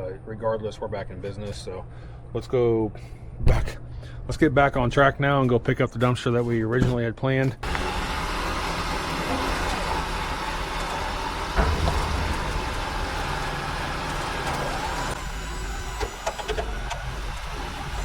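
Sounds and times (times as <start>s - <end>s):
road noise: 7.6s - 18.0s
truck engine rumbling: 7.6s - 18.0s
sharp knock: 11.5s - 15.2s.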